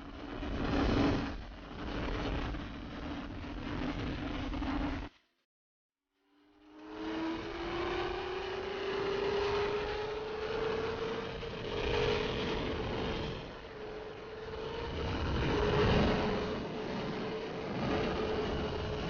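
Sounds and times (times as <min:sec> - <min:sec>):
wind rush on microphone: 0:00.0 - 0:05.1, 0:07.0 - 0:19.0
motorcycle engine accelerating: 0:06.4 - 0:19.0.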